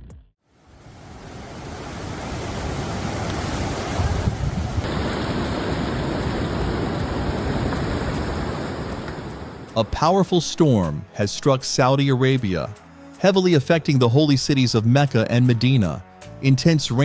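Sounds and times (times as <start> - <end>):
rushing water: 0.5 - 11.0
wind buffeting the microphone: 1.7 - 9.8.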